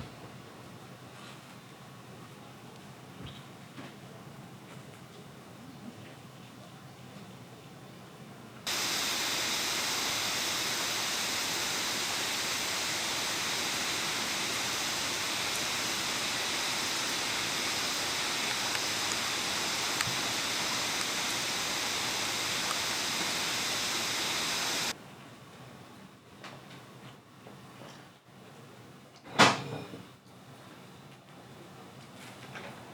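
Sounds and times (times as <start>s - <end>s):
heavy rain: 8.7s - 25.0s.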